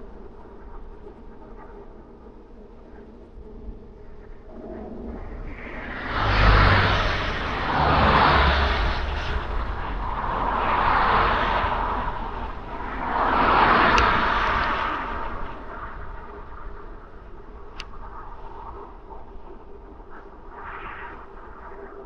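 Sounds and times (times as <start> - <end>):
vehicles passing by: 5.6 - 16.5.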